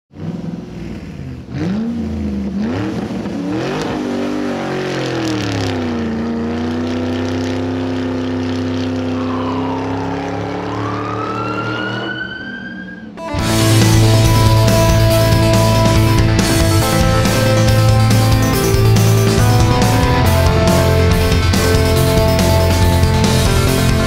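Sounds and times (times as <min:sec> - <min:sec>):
car engine revving: 0:00.1 - 0:24.0
high rising whine: 0:08.8 - 0:24.0.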